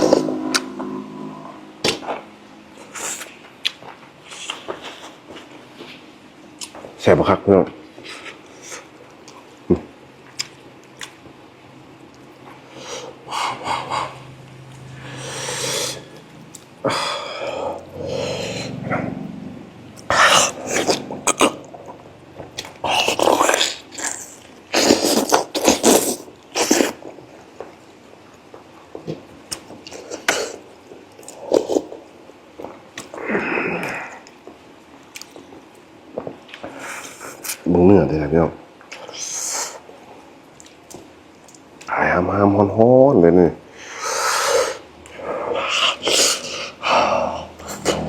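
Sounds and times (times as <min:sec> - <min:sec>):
close chewing with wet smacks: 0:10.2 - 0:11.4, 0:35.0 - 0:37.6
breathy noise: 0:12.6 - 0:19.4, 0:43.7 - 0:48.0
slurping while chewing: 0:22.6 - 0:27.0.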